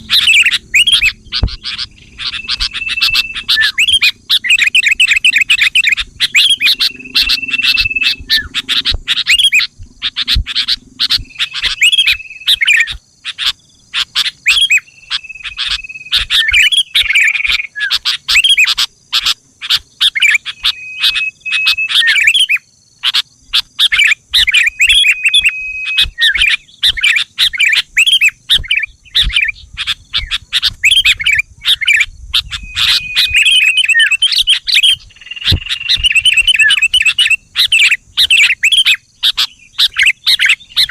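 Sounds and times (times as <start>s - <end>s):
bird held whistle note: 0.0s - 9.6s, 32.5s - 34.2s
bulbul rapid chirps: 0.0s - 17.7s, 32.4s - 40.9s.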